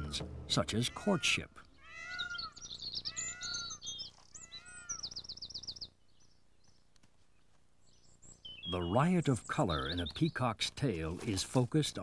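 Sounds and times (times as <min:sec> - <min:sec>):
birds chirping: 0:00.0 - 0:12.0
rapid high bird trill: 0:00.8 - 0:06.3.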